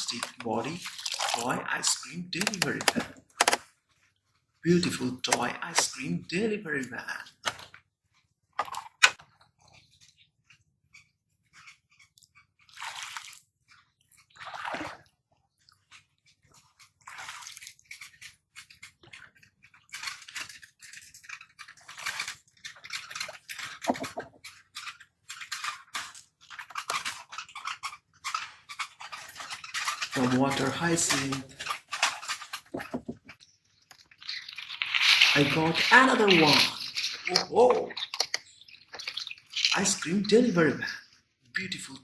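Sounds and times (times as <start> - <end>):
water splashing and dripping: 0.0 - 3.3, 11.6 - 27.7, 28.3 - 41.0
plants crunching and rustling: 33.4 - 40.0.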